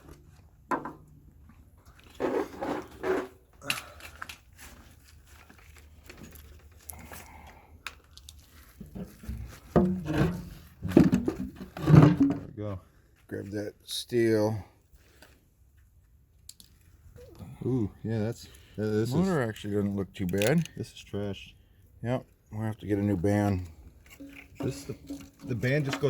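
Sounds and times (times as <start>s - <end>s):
clicks and knocks of tools: 19.5s - 20.8s.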